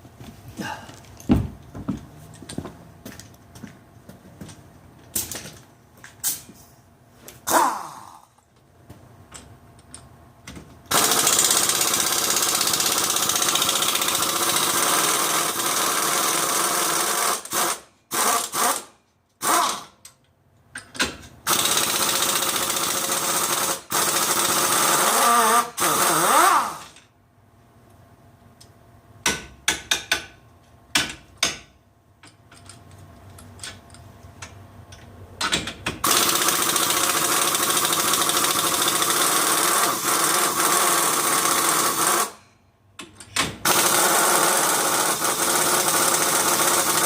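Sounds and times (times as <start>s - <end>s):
power tool running: 10.9s - 19.8s, 21.5s - 27.0s, 36.0s - 42.4s, 43.6s - 47.0s.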